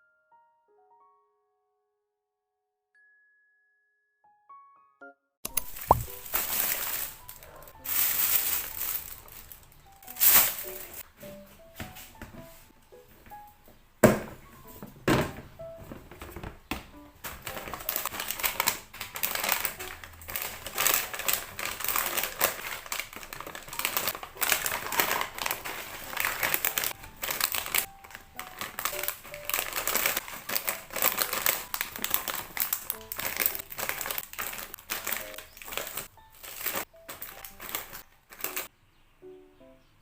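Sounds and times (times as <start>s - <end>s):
taps and clicks: 5.5s - 6.2s
packaging crinkling and rustling: 5.5s - 11.0s, 17.2s - 38.7s.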